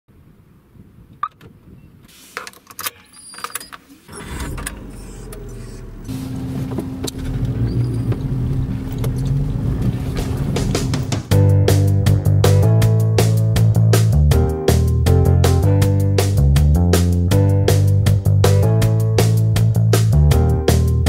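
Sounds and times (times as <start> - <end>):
car engine starting and running: 2.6 - 14.1.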